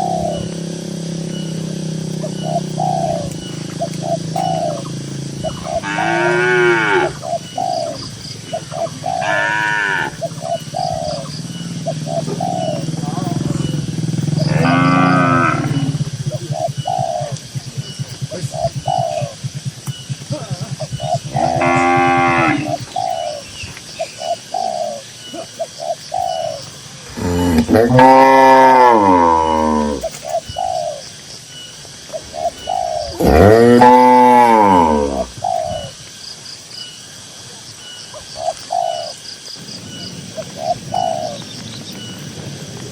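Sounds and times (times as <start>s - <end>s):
dove cooing: 0.0s - 36.1s, 38.1s - 42.9s
faint high bird chirps: 0.0s - 42.5s
cow mooing: 5.6s - 7.2s, 9.2s - 10.2s, 14.4s - 16.0s, 21.3s - 22.8s, 27.1s - 30.0s, 33.1s - 35.3s
short low calls: 27.0s - 30.2s, 32.8s - 36.0s.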